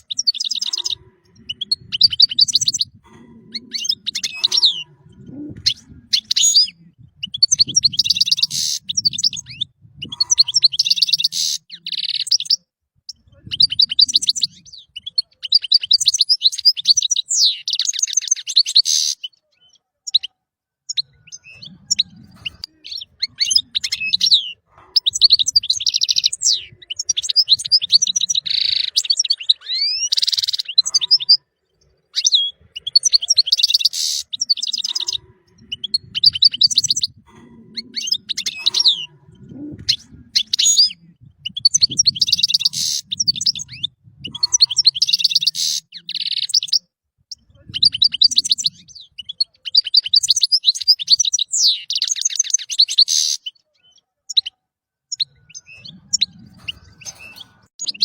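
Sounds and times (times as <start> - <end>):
goldfinch singing: 0.0 - 20.3, 32.0 - 46.8, 55.1 - 58.0.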